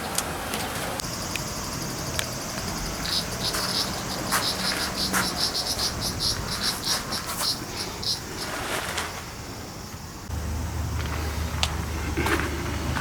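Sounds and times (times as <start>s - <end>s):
high-pitched insect buzz: 1.0s - 8.8s
fast rhythmic insect chirping: 1.0s - 11.0s.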